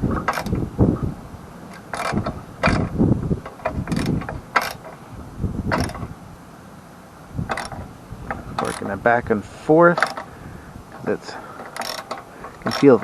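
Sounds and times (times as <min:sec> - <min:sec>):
socket ratchet clicking: 0:00.3 - 0:00.6, 0:01.7 - 0:05.0, 0:05.7 - 0:06.1, 0:07.5 - 0:08.9, 0:10.0 - 0:10.3, 0:11.6 - 0:13.0.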